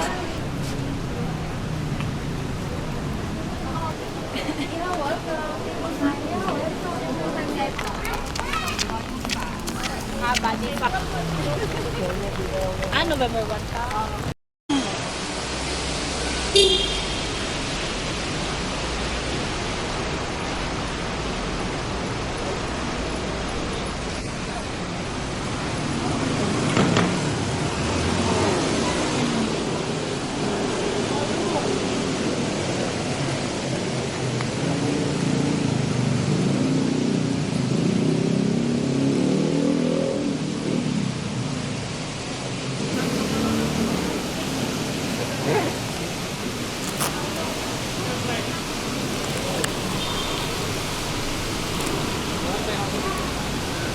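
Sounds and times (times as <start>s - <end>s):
heavy rain hissing: 41.9s - 53.9s
vehicle engine running: 43.0s - 53.9s.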